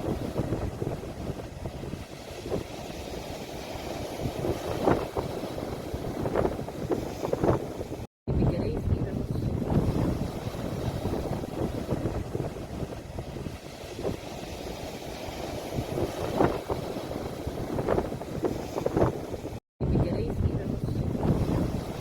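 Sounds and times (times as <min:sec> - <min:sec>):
sea waves washing on shore: 0:00.0 - 0:08.1, 0:08.7 - 0:22.0
wind buffeting microphone: 0:00.0 - 0:22.0.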